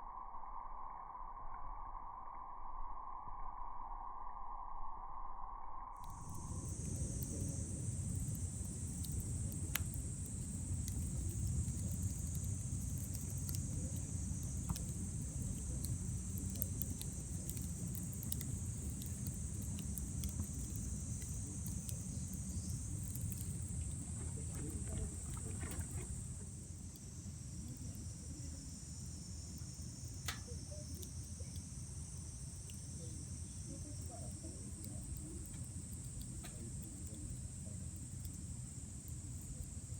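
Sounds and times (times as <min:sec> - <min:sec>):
bonfire crackling: 0:06.0 - 0:39.9
night insects chorus: 0:06.0 - 0:39.9.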